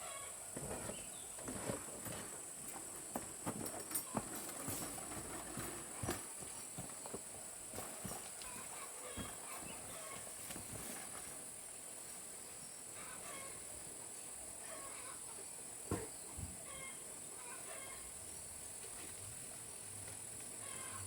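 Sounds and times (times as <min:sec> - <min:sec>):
chickens clucking: 0:08.4 - 0:10.4, 0:13.0 - 0:13.7, 0:14.6 - 0:18.1, 0:20.6 - 0:21.0.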